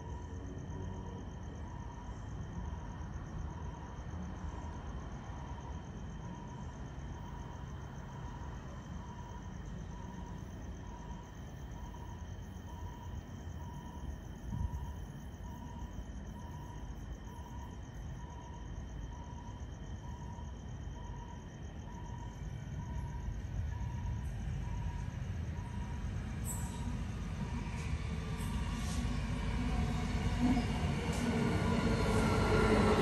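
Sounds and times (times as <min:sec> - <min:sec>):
insects chirring: 0:05.3 - 0:33.0
approaching train rumble: 0:21.6 - 0:33.0
faint high beep: 0:23.8 - 0:26.9.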